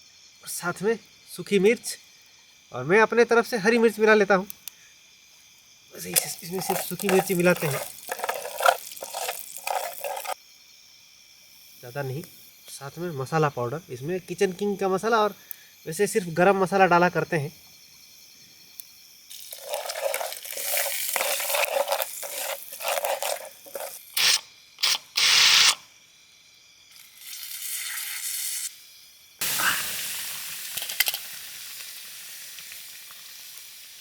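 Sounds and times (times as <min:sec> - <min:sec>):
spices sizzling in hot oil: 0:05.2 - 0:10.4, 0:19.2 - 0:24.4, 0:26.9 - 0:34.0
sharp hissing bursts: 0:19.3 - 0:25.8, 0:27.0 - 0:34.0.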